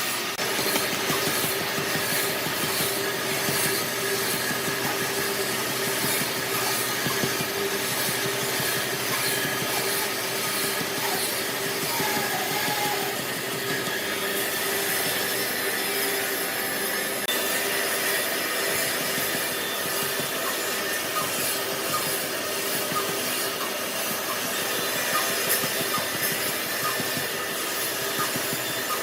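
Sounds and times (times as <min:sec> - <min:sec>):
power tool working wood: 0:00.0 - 0:29.0.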